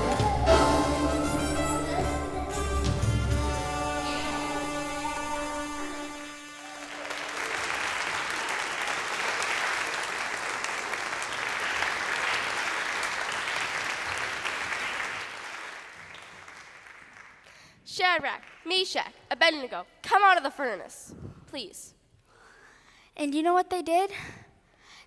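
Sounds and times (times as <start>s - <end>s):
audience clapping: 0.0s - 0.8s, 6.5s - 19.2s
song's held notes: 0.0s - 6.6s.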